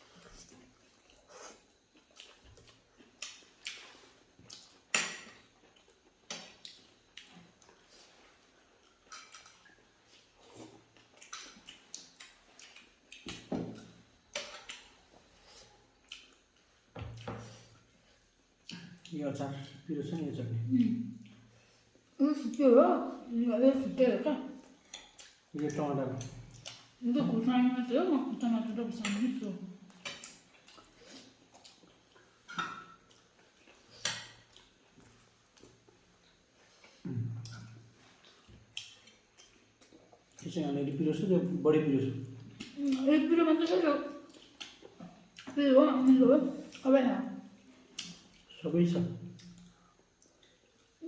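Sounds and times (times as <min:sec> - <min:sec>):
person chewing with mouth clicks: 0:00.2 - 0:04.9, 0:05.6 - 0:19.9, 0:24.9 - 0:25.6, 0:26.2 - 0:27.0, 0:29.9 - 0:40.5, 0:44.2 - 0:45.6, 0:46.6 - 0:46.9, 0:47.5 - 0:48.5, 0:49.3 - 0:51.0.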